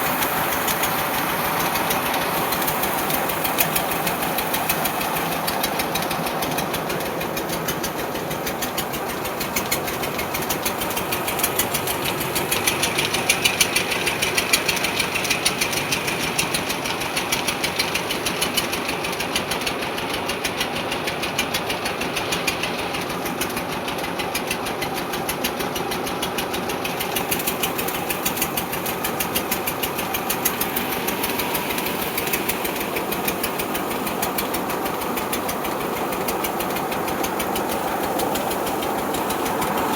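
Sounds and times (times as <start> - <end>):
tractor diesel engine knocking: 0.0 - 39.9.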